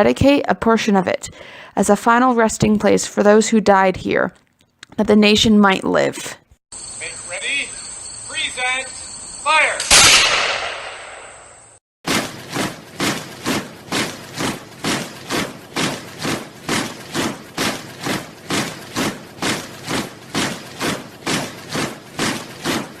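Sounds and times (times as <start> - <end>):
rhythmic rough thuds: 12.1 - 23.0.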